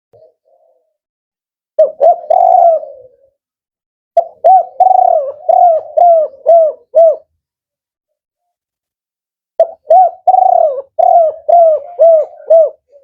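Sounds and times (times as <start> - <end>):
dove cooing: 0.2 - 1.0, 1.8 - 3.4, 4.2 - 7.3, 9.6 - 13.0.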